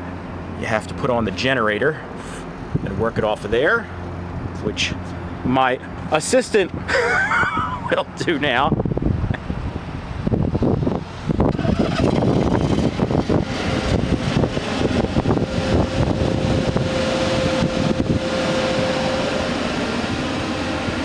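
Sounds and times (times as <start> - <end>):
steady whine: 0.0 - 21.0
generator running: 9.7 - 21.0.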